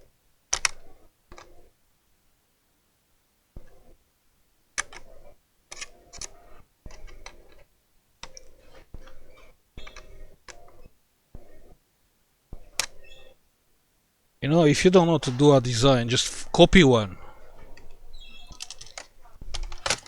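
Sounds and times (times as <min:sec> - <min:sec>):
laptop plastic clicks and clatter: 0:04.8 - 0:05.1, 0:05.7 - 0:09.2, 0:18.5 - 0:20.0.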